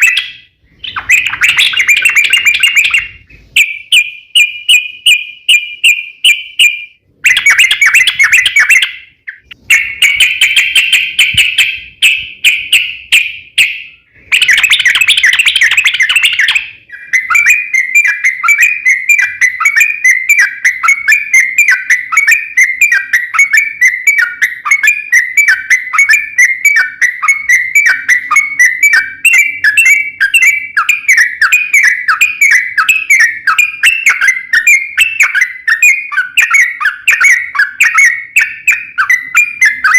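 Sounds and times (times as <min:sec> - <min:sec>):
bird song with rapid trills: 0:00.0 - 0:39.9.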